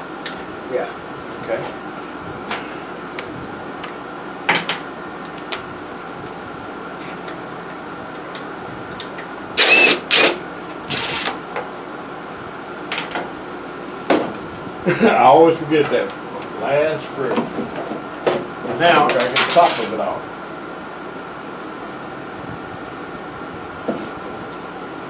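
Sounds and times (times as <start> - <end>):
steady background hum: 0.0 - 25.0
loud scraping bursts: 9.6 - 11.4.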